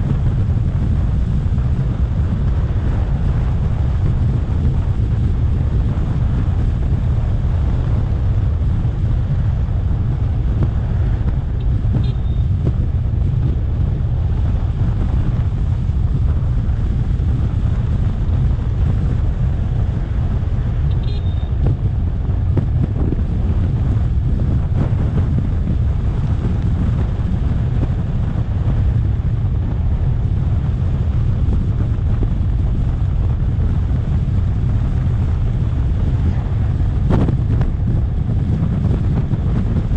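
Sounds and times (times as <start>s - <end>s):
road noise: 0.0s - 39.9s
wind buffeting microphone: 0.0s - 39.9s
faint short high beeps: 12.0s - 12.5s, 20.9s - 21.6s.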